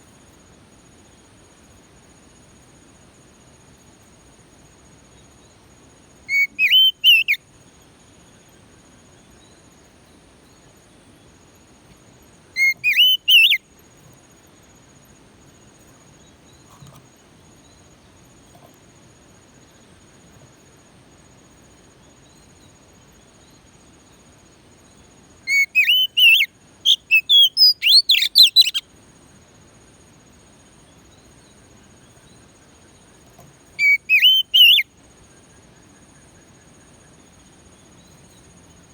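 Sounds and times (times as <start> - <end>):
faint high insect buzz: 0.0 - 38.9
bird singing whistled phrases: 6.3 - 7.4, 12.6 - 13.6, 25.5 - 28.8, 33.8 - 34.9.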